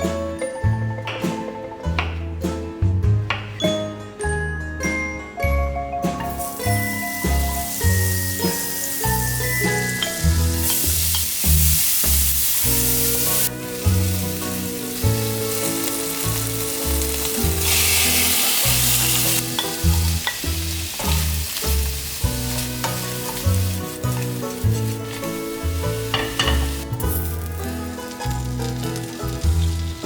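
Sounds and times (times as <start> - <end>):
food sizzling in a pan: 6.3 - 30.0.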